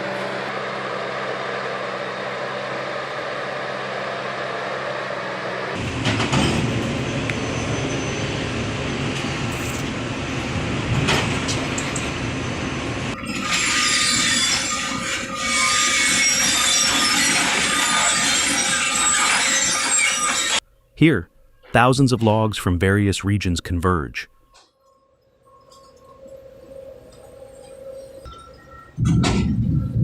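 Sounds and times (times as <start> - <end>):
heavy machinery rattling: 13.2 - 20.6.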